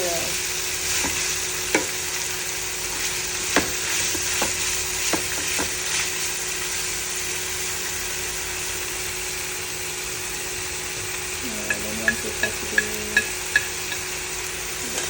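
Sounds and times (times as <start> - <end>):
chicken sizzling in oil: 0.0 - 15.0
utensil clinking against pan: 11.6 - 14.1.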